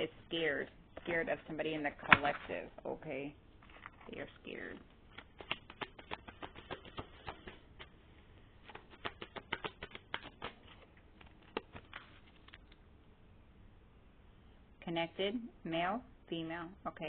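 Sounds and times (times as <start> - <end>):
cards shuffling with light clicks: 3.6 - 12.9
card taps: 5.2 - 7.9, 8.7 - 10.9.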